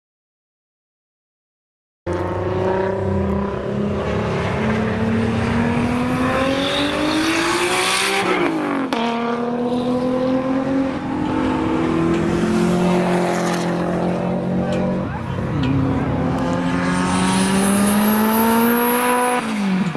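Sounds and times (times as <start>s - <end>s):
car engine accelerating hard: 2.1s - 19.9s.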